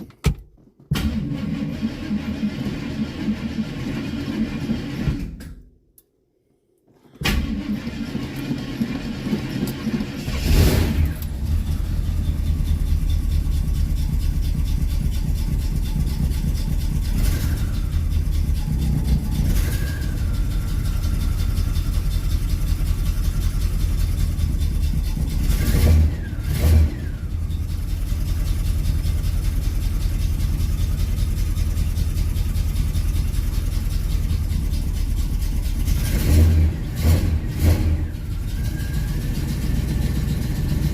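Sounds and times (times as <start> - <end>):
car engine cranking and starting: 0.0 - 5.6, 7.0 - 40.9
engine revving: 7.4 - 12.8, 15.8 - 23.3, 24.3 - 27.6, 34.4 - 40.9.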